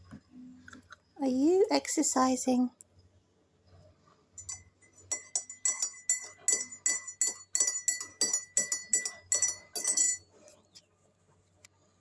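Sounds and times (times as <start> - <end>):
small metal bell jingling: 4.4 - 10.4.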